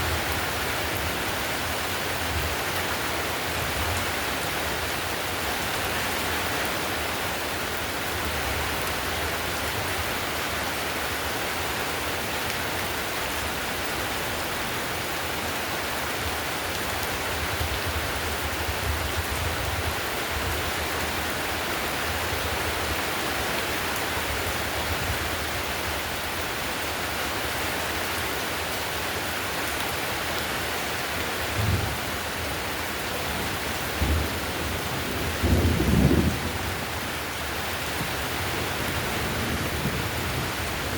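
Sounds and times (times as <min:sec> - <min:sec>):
heavy rain on a tiled roof: 0:00.0 - 0:40.9
low rumbles of thunder: 0:31.5 - 0:32.4, 0:33.4 - 0:37.2.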